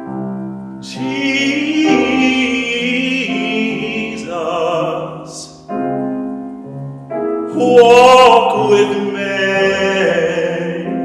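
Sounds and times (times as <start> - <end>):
instrumental accompaniment: 0.0 - 11.0
solo voice singing a hymn: 0.8 - 5.7, 7.5 - 11.0.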